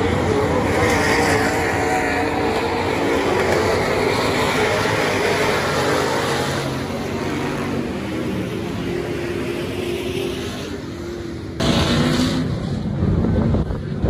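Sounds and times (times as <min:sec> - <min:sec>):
race car engines: 0:00.0 - 0:14.0
wind buffeting microphone: 0:12.8 - 0:14.0.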